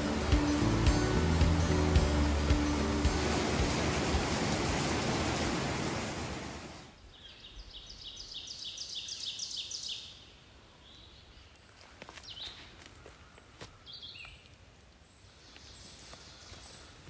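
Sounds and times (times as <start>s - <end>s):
creek rushing over rocks: 0.0s - 7.0s.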